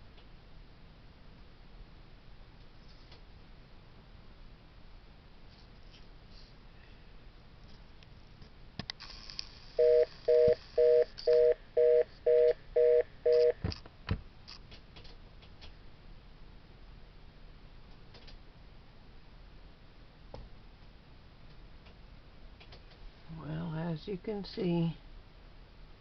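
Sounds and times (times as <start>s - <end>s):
telephone busy signal beeps: 9.8s - 13.6s.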